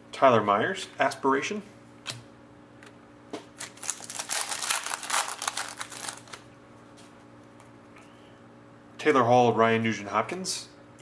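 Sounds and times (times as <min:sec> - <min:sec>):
plastic wrapper crinkling: 0:03.6 - 0:06.5.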